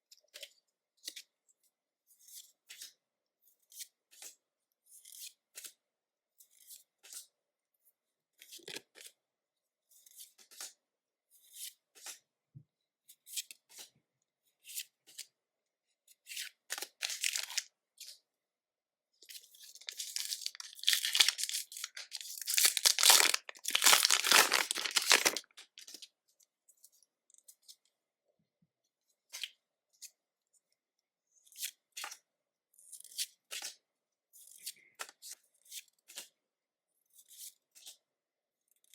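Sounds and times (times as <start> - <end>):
wrapper crinkling and taps: 16.8 - 17.7, 19.7 - 26.0
foil wrapper tearing: 17.0 - 17.6, 19.8 - 26.0.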